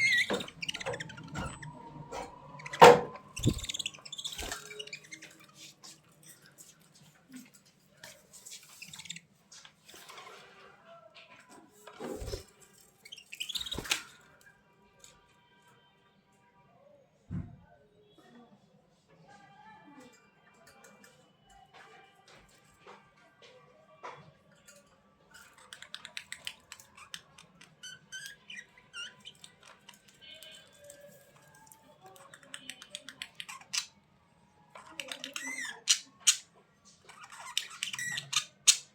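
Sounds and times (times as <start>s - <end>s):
budgerigars chirping and chattering: 0.0s - 1.8s, 2.4s - 5.7s, 34.9s - 38.9s
budgerigars chirping: 2.6s - 5.0s.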